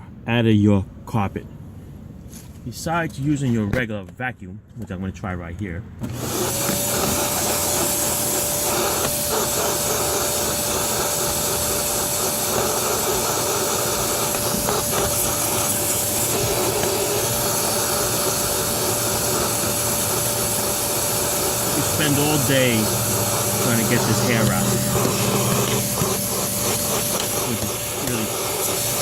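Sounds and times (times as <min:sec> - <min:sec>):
vacuum cleaner running: 0:06.0 - 0:29.0.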